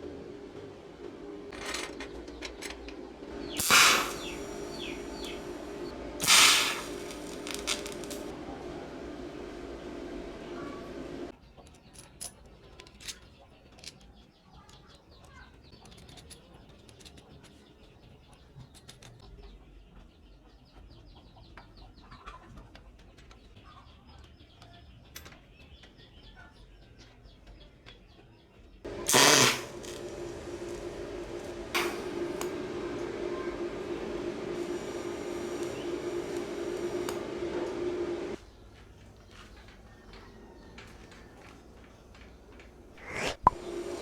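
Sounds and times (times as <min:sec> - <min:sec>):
machine humming: 0:00.0 - 0:11.3, 0:28.9 - 0:44.0
loud rush: 0:03.3 - 0:11.3, 0:28.9 - 0:38.4.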